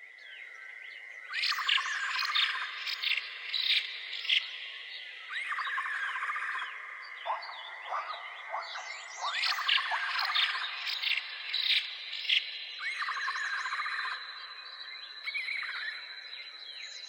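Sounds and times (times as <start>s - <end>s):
birds chirping: 7.2s - 13.2s.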